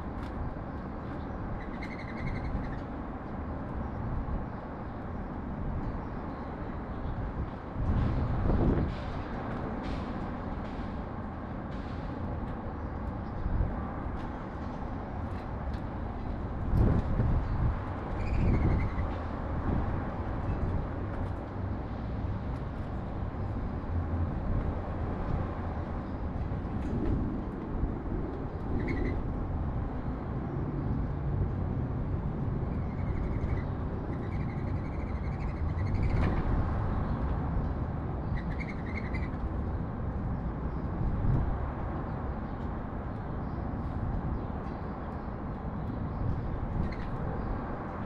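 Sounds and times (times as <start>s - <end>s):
city traffic rumble: 0.0s - 48.0s
small birds chirping: 38.2s - 39.4s.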